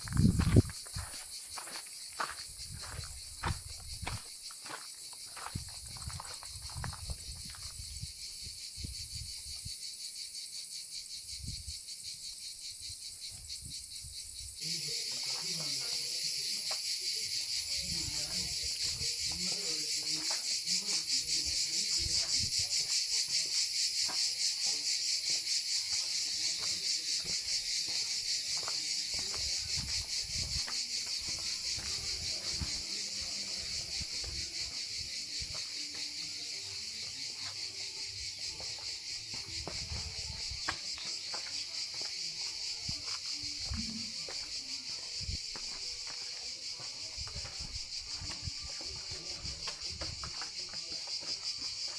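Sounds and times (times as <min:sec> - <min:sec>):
footsteps walking: 0:00.0 - 0:07.9, 0:18.3 - 0:21.1, 0:25.9 - 0:51.9
insect chorus buzzing: 0:00.0 - 0:51.9.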